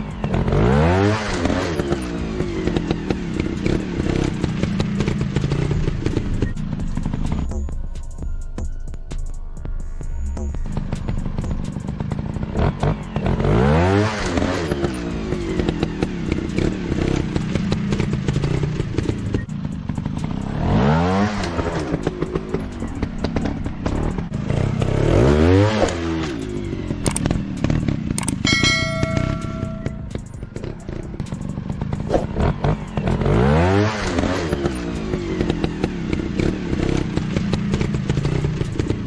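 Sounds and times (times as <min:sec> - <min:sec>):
dirt bike engines revving: 0:10.8 - 0:39.0.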